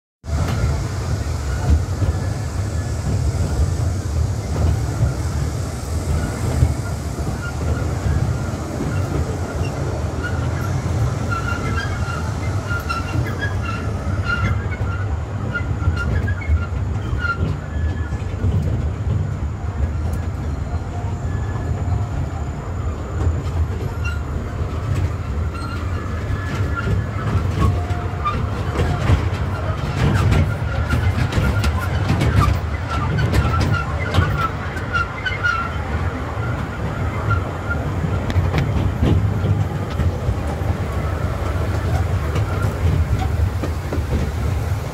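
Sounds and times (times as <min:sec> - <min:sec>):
train rumbling on track: 0:00.2 - 0:44.9
wheels squeaking: 0:06.1 - 0:18.5, 0:23.2 - 0:44.9.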